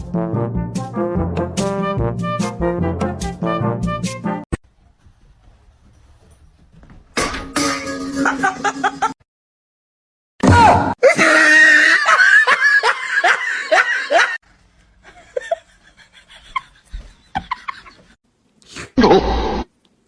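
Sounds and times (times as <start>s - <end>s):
loud laughter: 8.2s - 9.2s, 11.0s - 14.4s.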